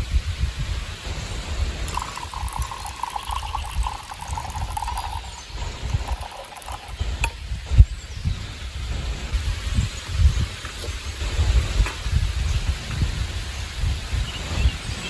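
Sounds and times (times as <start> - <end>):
wind on microphone: 0.0 - 15.0
water pouring: 1.3 - 7.5.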